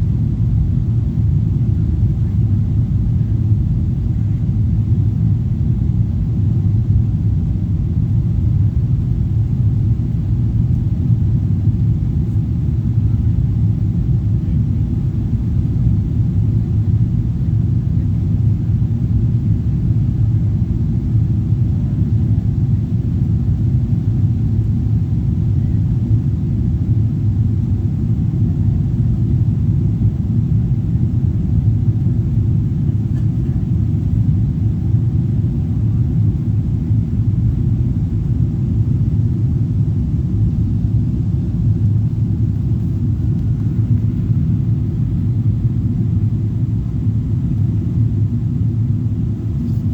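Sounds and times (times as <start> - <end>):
jet engines rumbling in cabin: 0.0 - 49.9.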